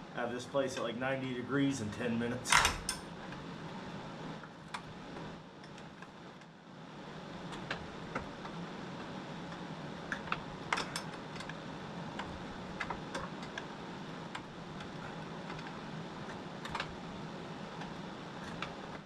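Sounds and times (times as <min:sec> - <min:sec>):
space heaters humming: 0:00.0 - 0:19.0.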